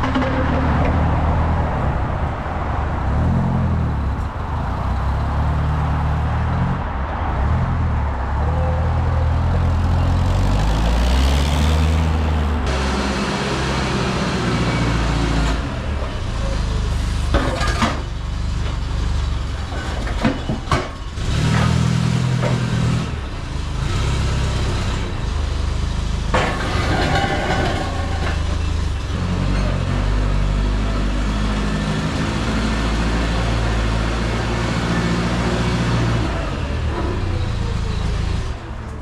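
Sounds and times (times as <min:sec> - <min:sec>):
vehicle engine revving: 0:00.0 - 0:17.4.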